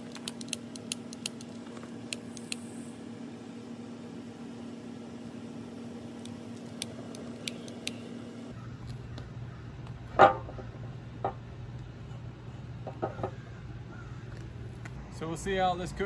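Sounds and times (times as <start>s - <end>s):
steady low hum: 0.0s - 16.0s
lighter clicking: 6.2s - 8.0s.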